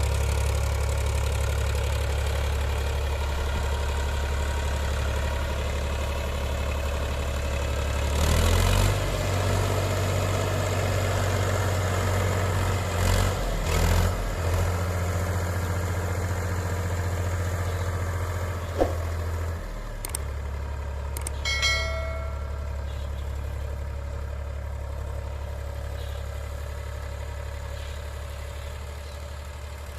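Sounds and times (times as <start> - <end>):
tractor diesel engine running: 0.0 - 29.9
sharp click: 20.0 - 20.3, 21.2 - 21.4
short high-pitched tone: 21.4 - 23.1.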